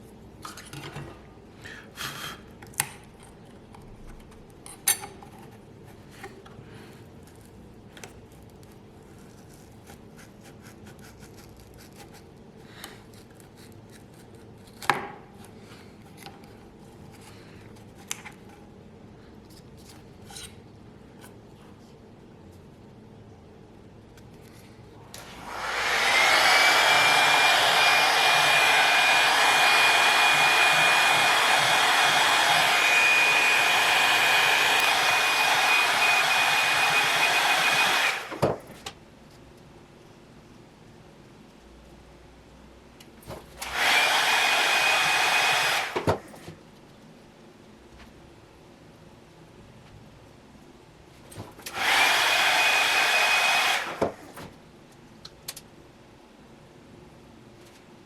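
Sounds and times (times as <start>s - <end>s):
electric blower whining: 25.2s - 38.6s, 43.6s - 46.2s, 51.7s - 54.2s.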